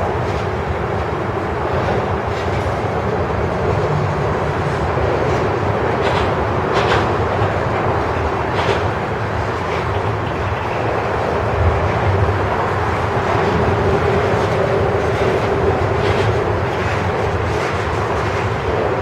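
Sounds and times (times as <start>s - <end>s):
freight train wheels on rails: 0.0s - 19.0s
train wheel clacks: 0.0s - 19.0s.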